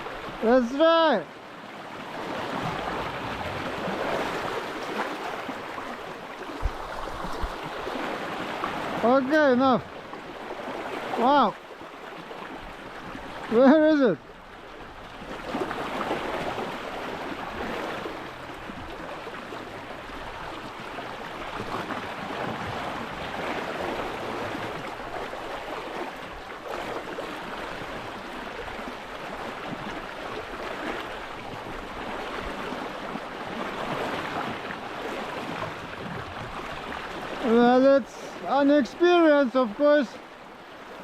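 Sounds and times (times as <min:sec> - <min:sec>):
sea water rushing: 0:00.0 - 0:41.0.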